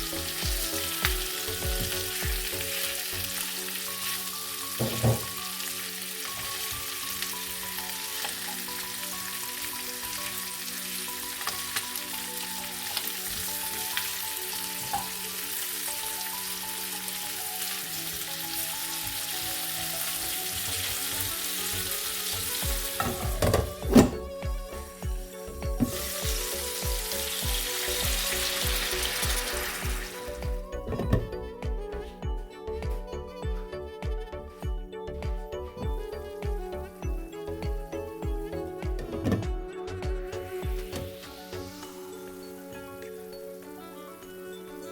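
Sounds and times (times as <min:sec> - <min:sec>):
chicken wings sizzling in a pan: 0:00.0 - 0:31.4
background music: 0:00.0 - 0:44.9.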